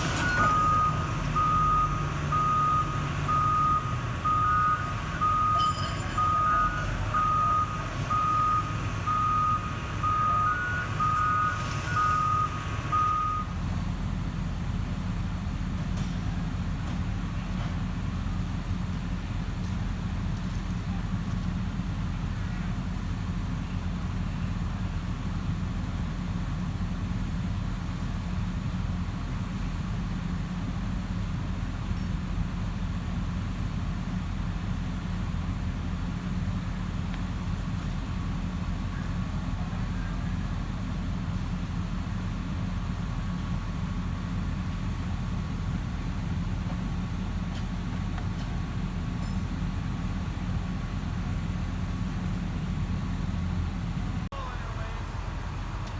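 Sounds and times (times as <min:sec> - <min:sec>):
diesel engines running: 0:00.0 - 0:55.9
backup alarm beeping: 0:00.2 - 0:13.6.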